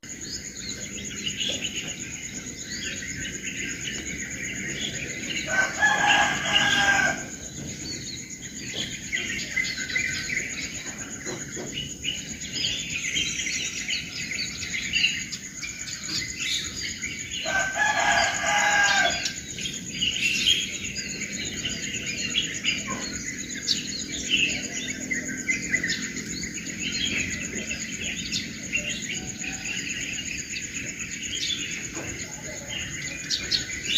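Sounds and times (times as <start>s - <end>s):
small birds chirping: 0.0s - 33.9s
steady high-pitched whine: 0.0s - 33.9s
rooster crowing: 5.3s - 7.5s, 17.3s - 19.5s, 28.7s - 30.4s.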